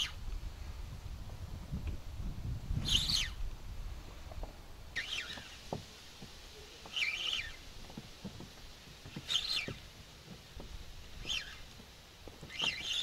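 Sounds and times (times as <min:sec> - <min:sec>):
bird chirping: 0:02.8 - 0:03.4, 0:04.9 - 0:05.7, 0:06.6 - 0:07.8, 0:09.0 - 0:09.9, 0:11.1 - 0:11.8, 0:12.4 - 0:13.0.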